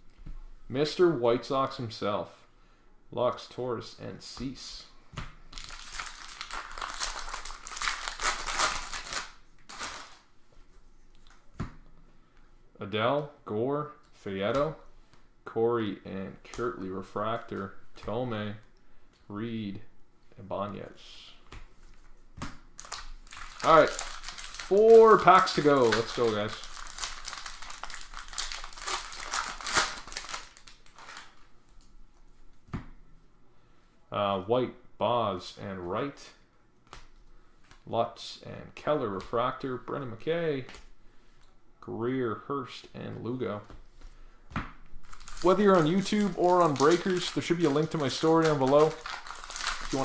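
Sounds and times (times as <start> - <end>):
foil wrapper crinkling: 5.6 - 10.3, 22.8 - 31.5, 45.0 - 50.0.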